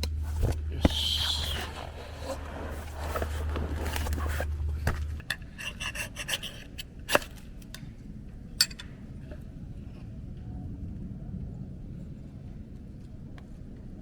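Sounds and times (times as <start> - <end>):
scraping and rubbing: 0.0 - 7.4
steady low hum: 0.0 - 14.0.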